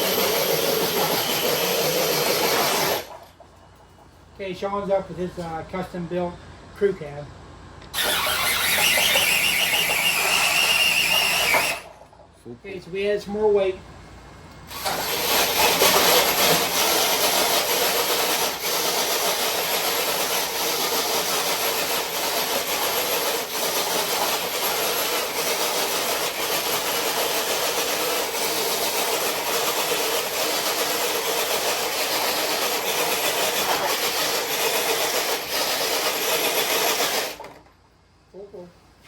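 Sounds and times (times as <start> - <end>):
electric motor whirring: 0.0 - 3.2, 7.9 - 11.9
sled scraping on concrete: 0.0 - 4.2, 7.9 - 12.2, 14.8 - 37.7.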